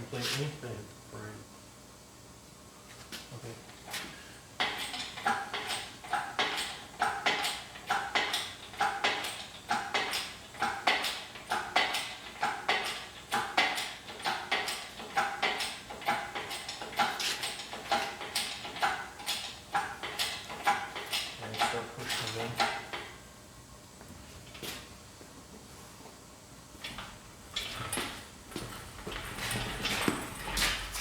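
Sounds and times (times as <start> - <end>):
engine hoist metallic clanking: 4.6 - 23.2, 26.8 - 31.0.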